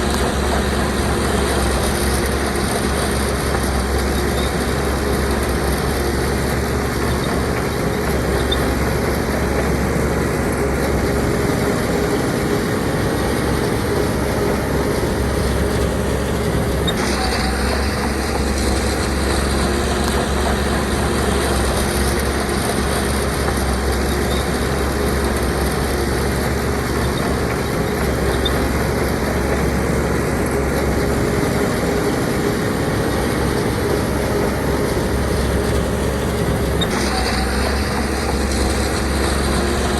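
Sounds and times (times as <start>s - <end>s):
diesel machinery engine running: 0.0s - 39.9s.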